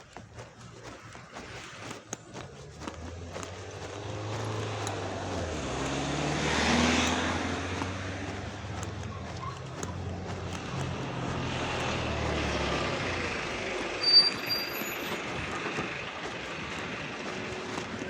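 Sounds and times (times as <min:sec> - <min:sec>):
vehicle engine hum and road noise: 0:00.0 - 0:18.0
high-pitched squeak: 0:14.0 - 0:15.2.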